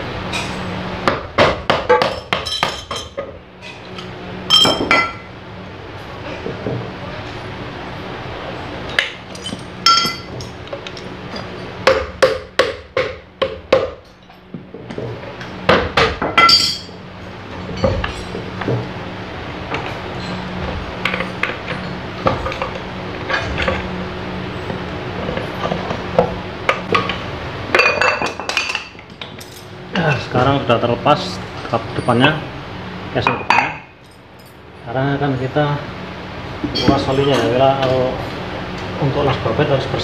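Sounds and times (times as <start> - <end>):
hand tools clinking on metal: 9.3 - 11.8, 16.4 - 16.9.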